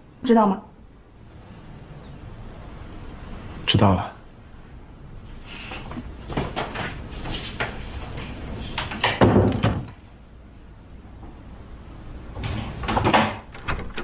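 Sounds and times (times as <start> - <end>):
door clicks and knocks: 8.8 - 10.0, 12.4 - 14.0
door thud: 9.0 - 9.9.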